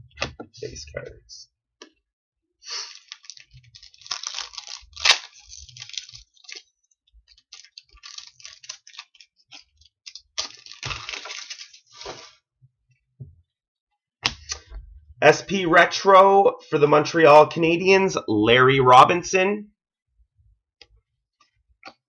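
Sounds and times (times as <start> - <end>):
trading cards rustling and sliding: 7.6 - 12.4.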